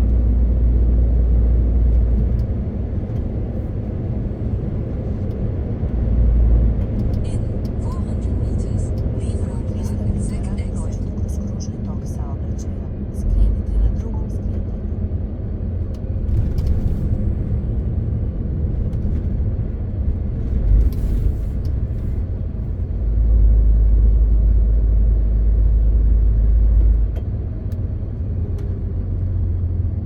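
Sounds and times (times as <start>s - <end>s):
road noise: 0.0s - 30.0s
truck diesel engine rumble: 0.0s - 30.0s.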